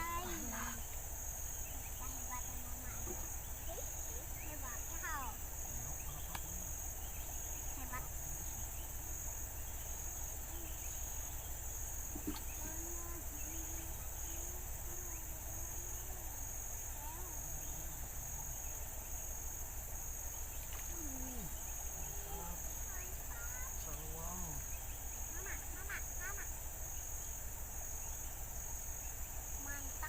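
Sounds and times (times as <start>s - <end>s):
insects pulsing trill: 0.0s - 30.0s
faint far-off voices: 20.9s - 26.5s.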